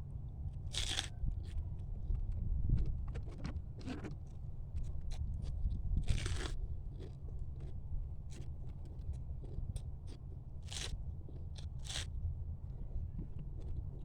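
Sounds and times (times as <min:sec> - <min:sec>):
crab shell crunching between teeth: 0:00.7 - 0:01.1, 0:06.0 - 0:07.7, 0:08.3 - 0:11.0.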